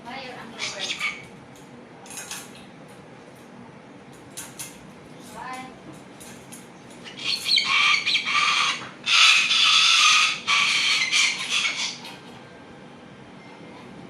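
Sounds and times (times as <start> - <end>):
bird harsh calls: 0.6 - 1.3, 7.0 - 12.2.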